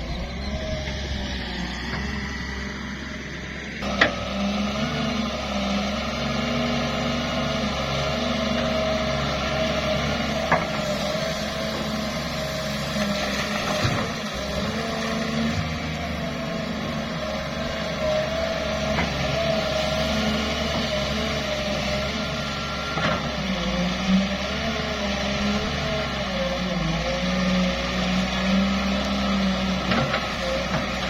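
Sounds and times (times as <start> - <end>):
excavator engine running: 0.0 - 31.0.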